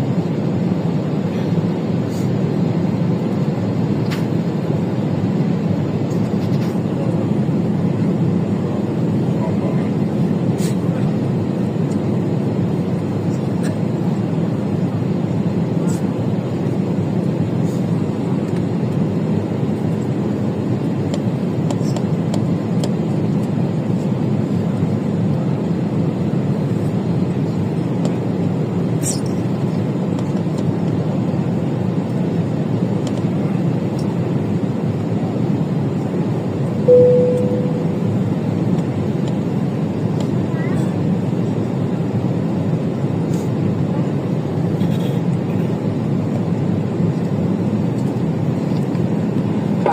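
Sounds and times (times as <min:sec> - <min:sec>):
short single tone: 0:36.9 - 0:38.1.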